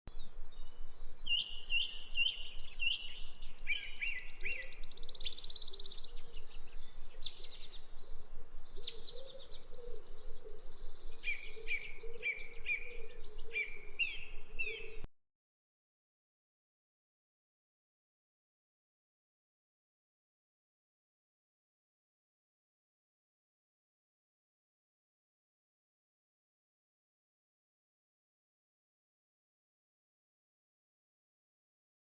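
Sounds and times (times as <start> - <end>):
songbird singing: 0.1 - 15.1.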